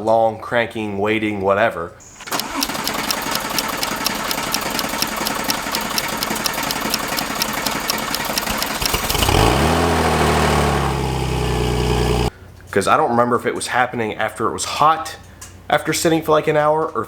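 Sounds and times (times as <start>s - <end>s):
starter motor cranking engine: 2.0s - 12.3s
car engine idling: 2.1s - 12.3s.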